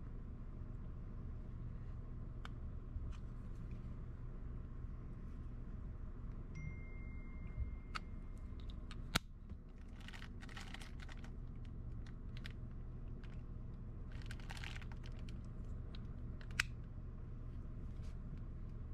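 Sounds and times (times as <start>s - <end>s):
low background rumble: 0.0s - 18.9s.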